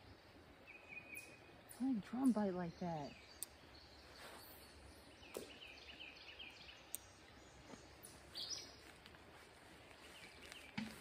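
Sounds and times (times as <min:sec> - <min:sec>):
songbird singing: 0:00.0 - 0:11.0
soft clicks: 0:03.4 - 0:03.6, 0:06.9 - 0:07.1.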